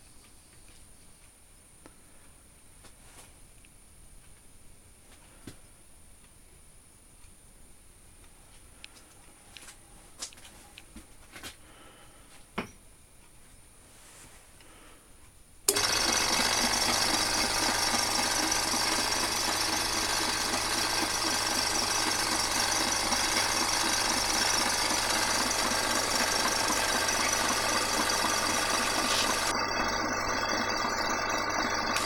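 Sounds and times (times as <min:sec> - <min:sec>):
milling machine motor hum: 0:15.7 - 0:32.0
rapid mechanical rattle: 0:15.7 - 0:32.0.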